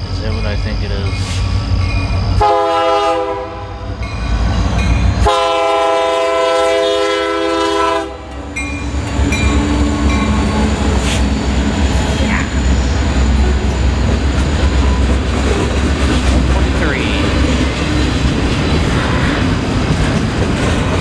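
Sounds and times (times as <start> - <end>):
low rumble of passing train: 0.0 - 21.0
locomotive air horn blasts: 2.4 - 3.8, 5.2 - 8.3.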